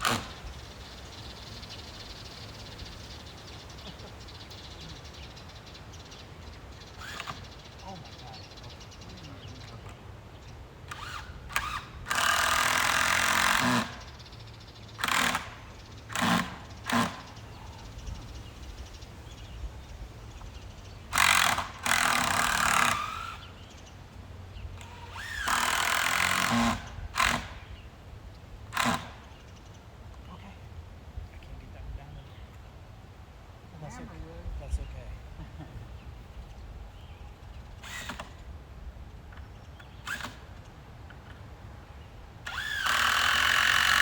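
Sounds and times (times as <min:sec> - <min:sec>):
power drill driving screws: 0:00.0 - 0:00.4, 0:07.0 - 0:07.4, 0:10.9 - 0:14.0, 0:15.0 - 0:17.3, 0:21.1 - 0:23.4, 0:24.8 - 0:27.6, 0:28.8 - 0:29.2, 0:37.8 - 0:38.4, 0:40.0 - 0:40.5, 0:42.5 - 0:44.0.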